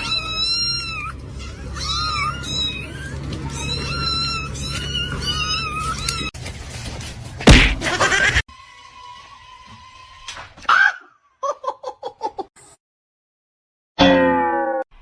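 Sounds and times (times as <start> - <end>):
cat meowing: 0.0 - 6.3
loud thump: 7.5 - 8.0.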